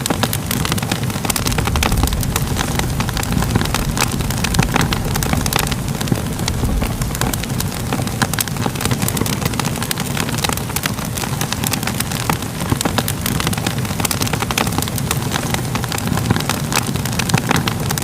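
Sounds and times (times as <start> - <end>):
fire crackling and popping: 0.0 - 18.0
low rumble: 1.0 - 10.4.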